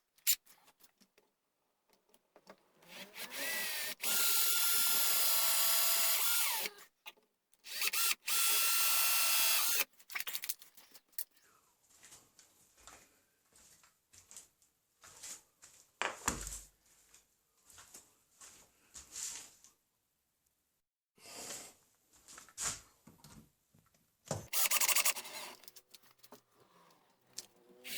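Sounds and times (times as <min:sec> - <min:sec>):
whining power tool on wood: 0:02.8 - 0:06.8
scraping and handling sounds: 0:09.9 - 0:11.4, 0:24.5 - 0:27.9.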